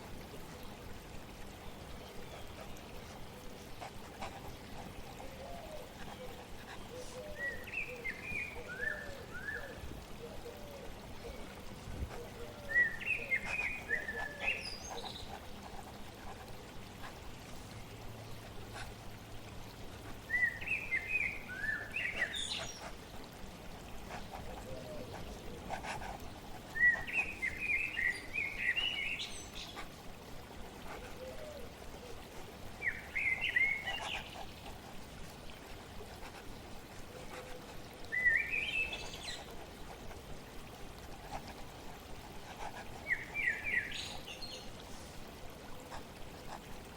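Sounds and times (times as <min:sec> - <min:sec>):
water trickling: 0:00.0 - 0:46.9
songbird singing: 0:05.2 - 0:11.5, 0:32.8 - 0:34.7, 0:38.1 - 0:39.5.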